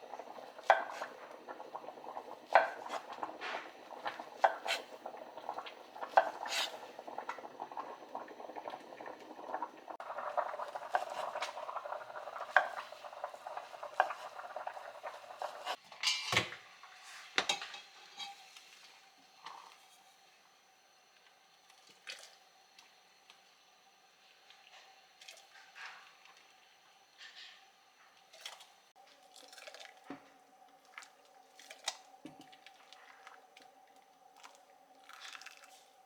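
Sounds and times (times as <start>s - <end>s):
hiss of cooking: 0.0s - 21.6s
utensils clinking on pots: 15.6s - 16.6s, 17.4s - 18.6s.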